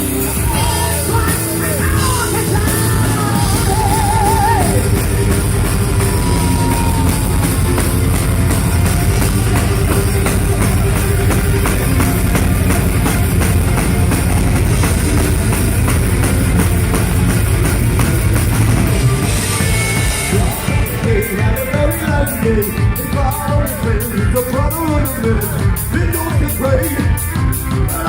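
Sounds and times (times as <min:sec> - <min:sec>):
heavy metal band playing: 0:00.0 - 0:28.0.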